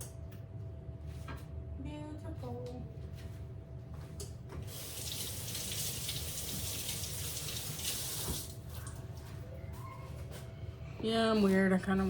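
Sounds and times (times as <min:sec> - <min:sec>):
faucet running: 0:04.7 - 0:08.6.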